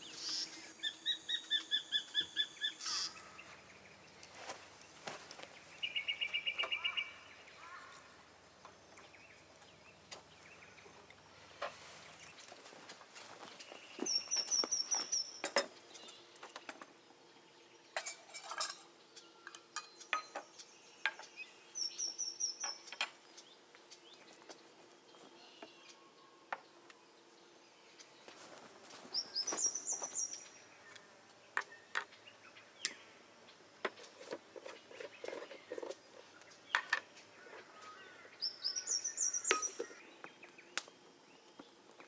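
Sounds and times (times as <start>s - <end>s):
dishes and utensils clattering: 18.0s - 18.9s.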